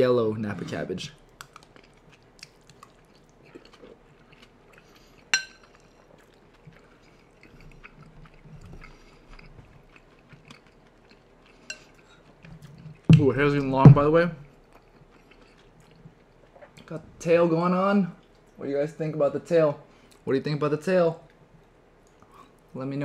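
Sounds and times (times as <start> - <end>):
chewing with wet mouth clicks: 1.2 - 13.3, 14.5 - 16.9.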